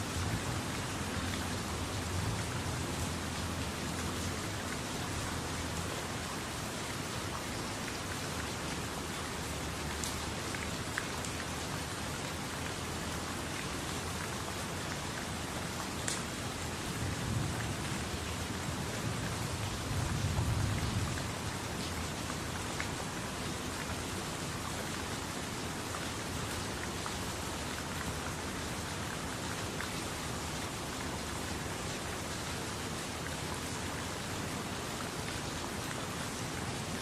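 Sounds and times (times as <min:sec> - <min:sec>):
steady rain falling: 0:00.0 - 0:37.0
sharp individual raindrops: 0:16.0 - 0:16.5.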